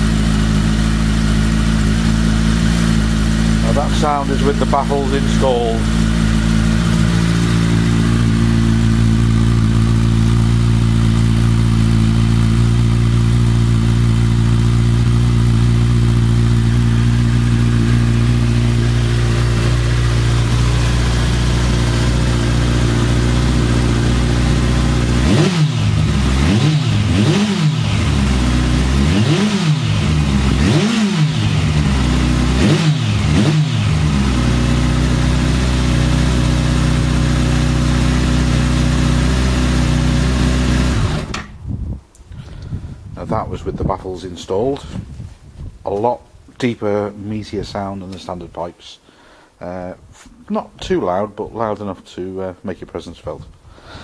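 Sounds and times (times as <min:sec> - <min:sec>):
motorcycle engine idling and revving: 0:00.0 - 0:41.6.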